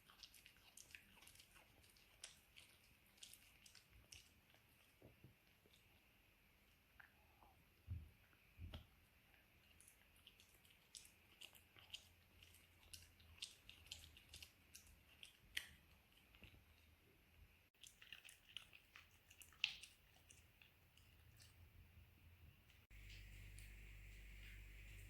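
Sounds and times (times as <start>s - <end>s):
dog chewing food: 0.0s - 5.9s, 9.6s - 16.6s, 17.8s - 21.5s.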